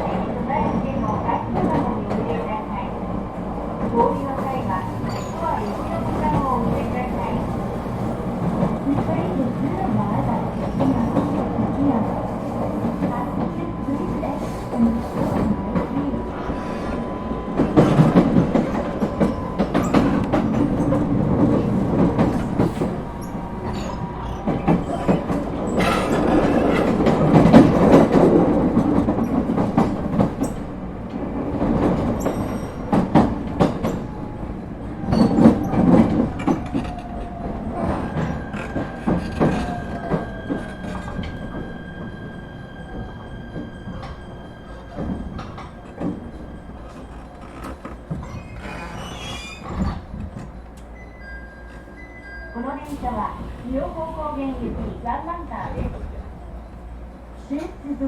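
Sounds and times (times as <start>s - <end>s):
train wheels clattering over rail joints: 16.7s - 34.3s, 35.0s - 41.7s.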